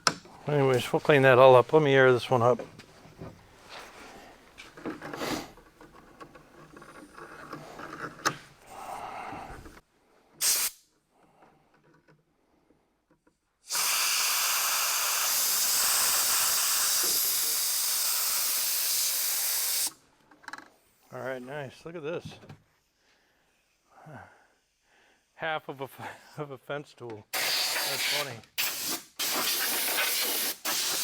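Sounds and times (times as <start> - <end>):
compressed air hissing: 5.2 - 5.6, 10.4 - 10.8, 13.6 - 20.0, 27.4 - 31.0.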